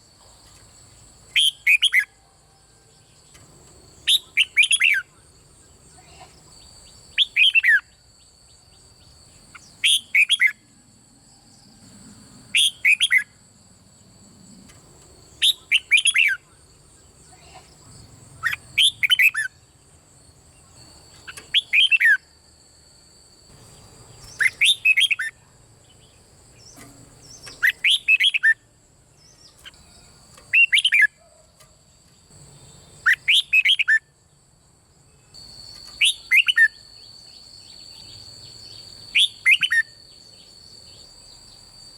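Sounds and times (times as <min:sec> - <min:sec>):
bird singing whistled notes: 0:01.3 - 0:03.4, 0:04.0 - 0:06.0, 0:06.6 - 0:11.9, 0:12.5 - 0:13.4, 0:15.3 - 0:19.8, 0:20.5 - 0:22.4, 0:23.6 - 0:31.2, 0:32.5 - 0:34.1, 0:35.1 - 0:41.9.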